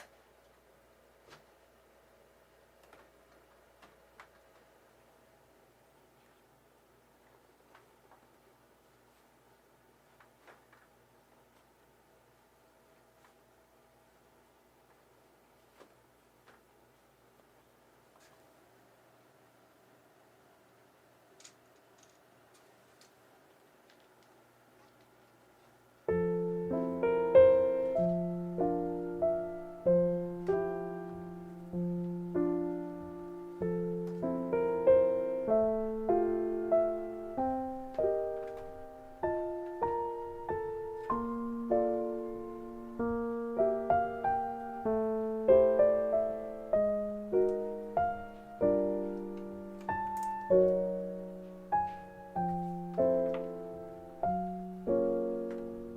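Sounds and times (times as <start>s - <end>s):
solo piano music: 26.1s - 55.9s.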